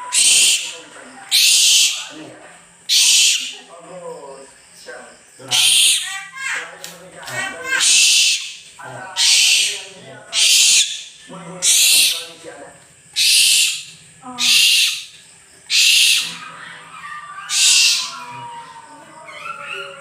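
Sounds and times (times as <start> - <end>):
owl screeching: 0.0 - 2.2, 2.9 - 3.7, 5.4 - 6.6, 7.6 - 12.3, 13.2 - 20.0.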